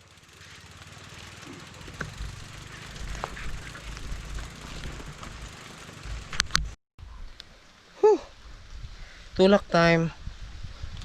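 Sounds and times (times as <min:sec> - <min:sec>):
bicycle clicks and knocks: 0:00.0 - 0:06.8
wind rumbling on microphone: 0:02.0 - 0:07.4, 0:08.3 - 0:11.0.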